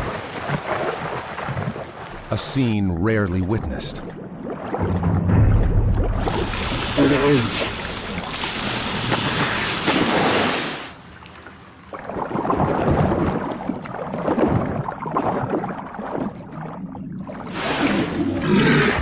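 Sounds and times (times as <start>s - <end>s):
water splashing and churning: 0.0s - 19.0s
deep animal grunts: 18.4s - 19.0s.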